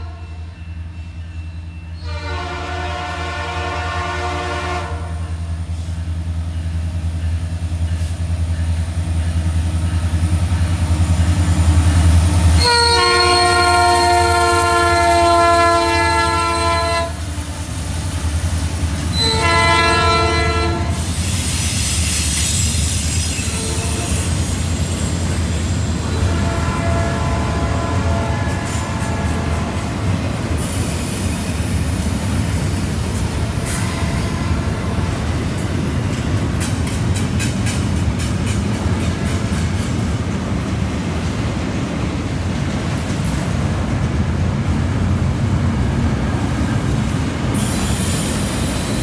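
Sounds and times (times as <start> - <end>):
train air horn blasts: 0.0 - 0.5, 2.0 - 5.5, 12.6 - 17.8, 19.1 - 21.2, 23.2 - 24.5, 26.0 - 29.8, 33.6 - 35.2
diesel locomotive engines: 0.0 - 49.0
train wheels rumbling and clattering: 0.8 - 49.0.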